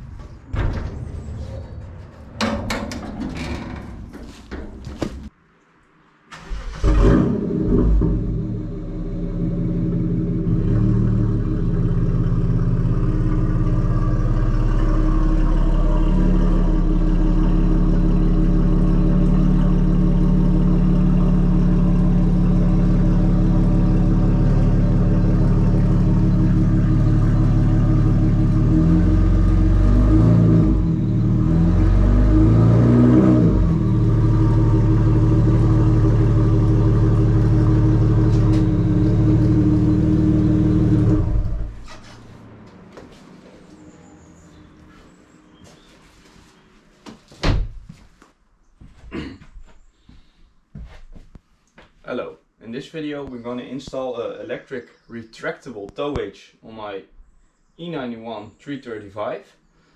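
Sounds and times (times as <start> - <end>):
car engine idling and revving: 6.4 - 45.5.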